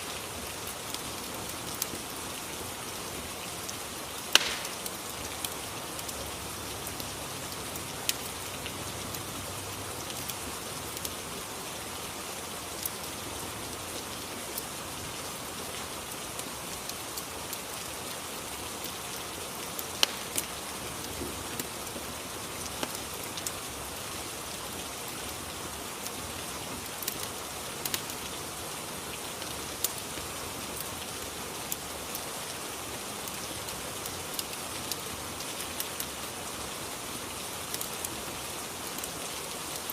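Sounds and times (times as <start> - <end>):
steady rain: 0.0 - 39.9
fireplace pops and crackles: 4.2 - 6.1, 20.0 - 21.7.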